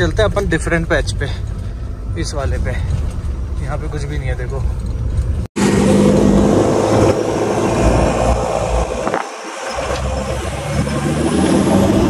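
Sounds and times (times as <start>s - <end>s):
car engine under load: 0.0s - 12.0s
loud rushing noise: 5.6s - 12.0s.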